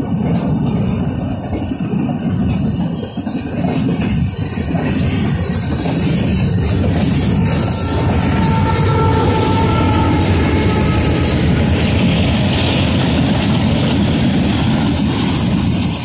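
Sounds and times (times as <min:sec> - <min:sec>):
freight train wheels rumbling: 0:00.0 - 0:16.0
faint high squeal: 0:04.6 - 0:12.6.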